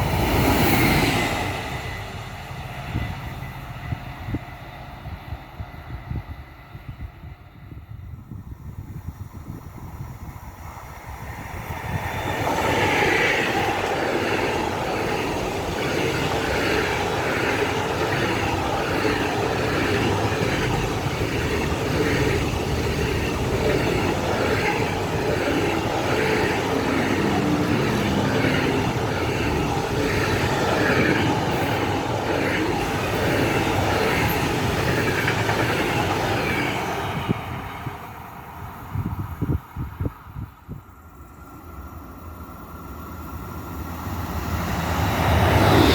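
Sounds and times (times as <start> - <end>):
freight train rolling past: 0.0 - 45.9.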